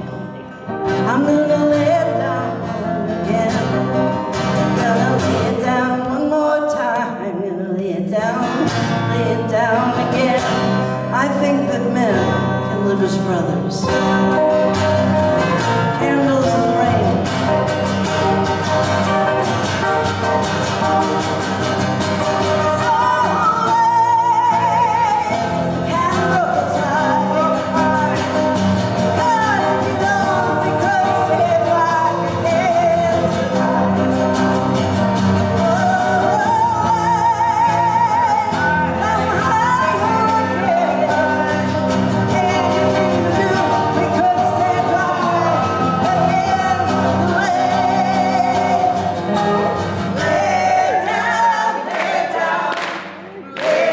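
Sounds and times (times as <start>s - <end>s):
guitar: 0.0s - 53.9s
woman singing with vibrato: 0.9s - 52.9s.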